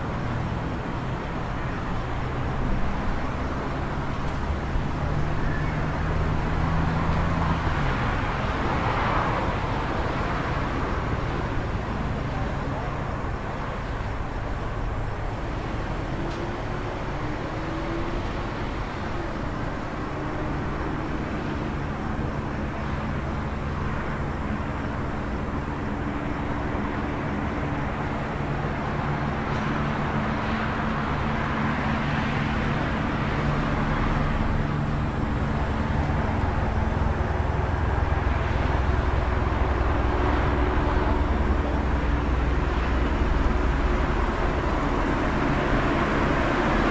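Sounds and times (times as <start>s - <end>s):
road noise: 0.0s - 46.9s
vehicle engines humming: 0.0s - 46.9s.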